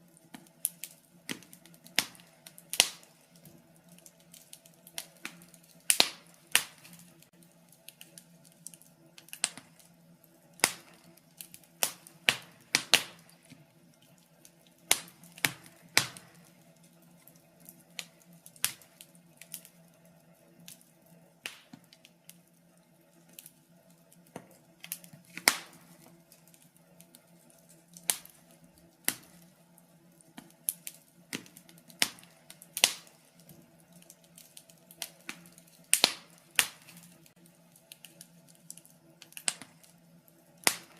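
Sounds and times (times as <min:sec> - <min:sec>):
faint steady hum: 0:00.0 - 0:40.9
wood fire crackling: 0:00.0 - 0:40.9.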